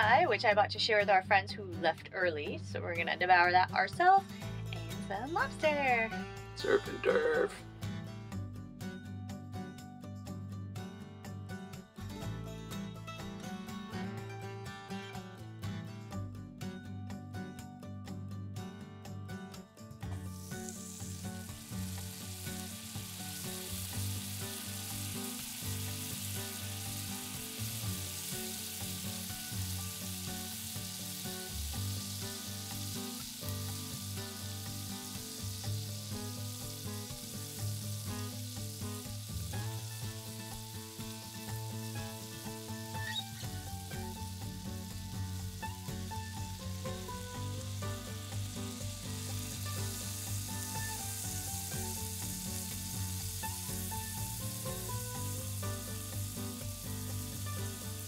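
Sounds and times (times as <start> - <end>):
soft background music: 0.0 - 58.0
lobster sizzling in butter: 20.1 - 58.0.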